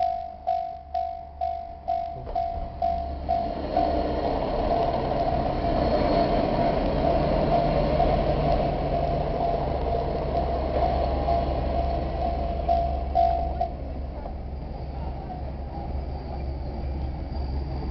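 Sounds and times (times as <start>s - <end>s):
level crossing alarm bell: 0.0s - 14.1s
diesel train passing: 0.0s - 17.9s.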